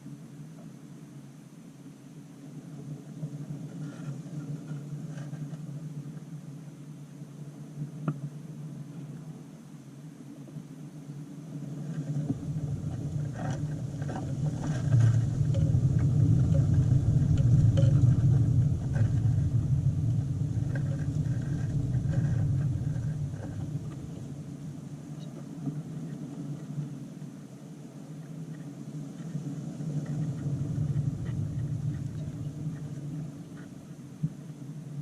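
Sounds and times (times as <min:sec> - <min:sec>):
low rumble: 0:11.5 - 0:25.2, 0:29.4 - 0:34.3.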